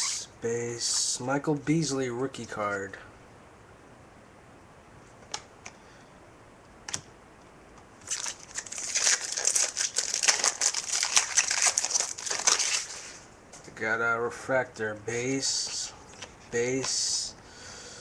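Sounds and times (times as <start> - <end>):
foil wrapper crinkling and tearing: 8.0 - 13.2.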